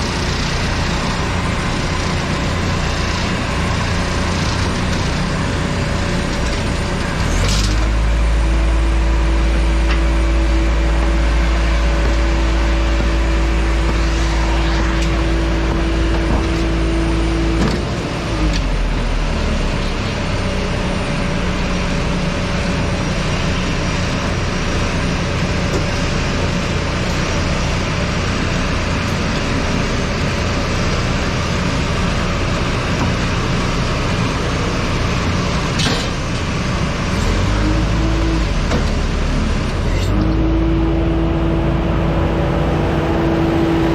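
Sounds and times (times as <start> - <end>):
motor running and winding down: 0.0 - 8.0, 10.4 - 17.6
steady mechanical hum: 0.0 - 43.9.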